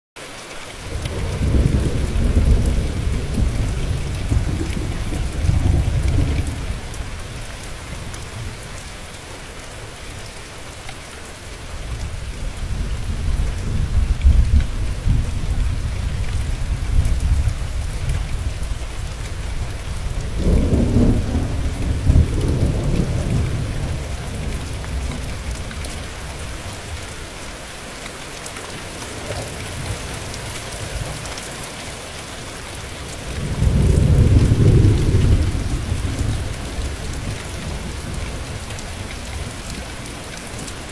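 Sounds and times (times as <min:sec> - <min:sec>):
steady rain falling: 0:00.2 - 0:40.9
rolling thunder: 0:00.9 - 0:08.5, 0:11.9 - 0:26.6, 0:33.2 - 0:39.8.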